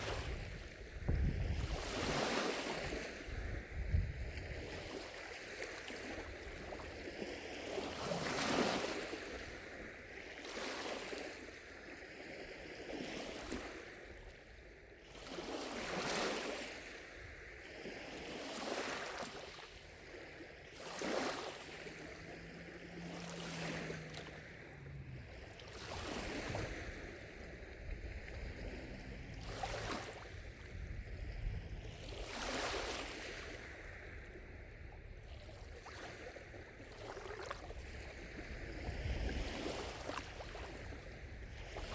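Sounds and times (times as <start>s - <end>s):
lake waves lapping against shore: 0.0s - 41.9s.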